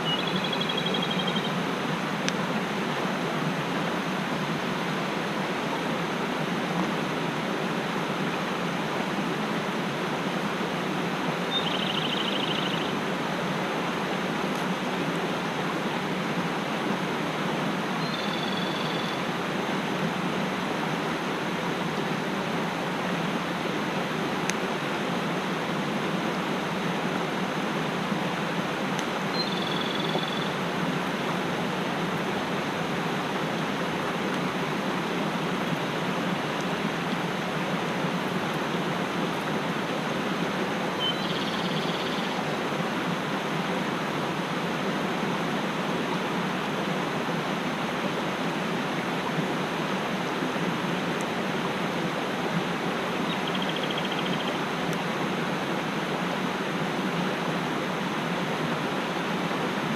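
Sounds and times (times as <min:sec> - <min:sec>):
small bird calling: 0:00.0 - 0:01.6, 0:11.5 - 0:13.0, 0:18.0 - 0:19.3, 0:29.3 - 0:30.6, 0:41.0 - 0:42.4, 0:53.3 - 0:54.6
mountain stream rushing: 0:00.0 - 0:59.9.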